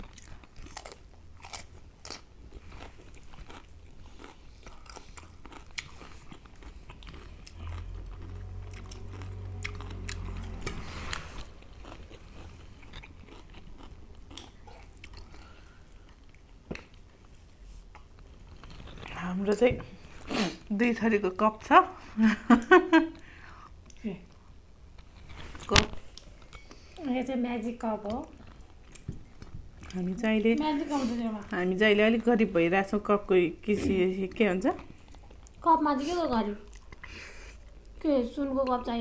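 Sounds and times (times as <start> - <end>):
crunching and chewing: 0.0 - 20.3, 28.0 - 30.0, 36.6 - 38.1
low rumble: 7.4 - 12.9.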